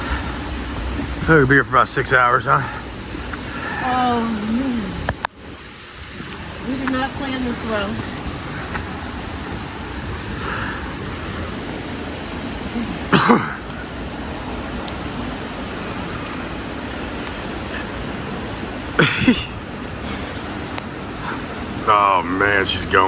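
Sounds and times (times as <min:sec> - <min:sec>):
steady rain falling: 0:00.0 - 0:23.0
person coughing or exclaiming: 0:13.1 - 0:13.6, 0:19.0 - 0:19.6.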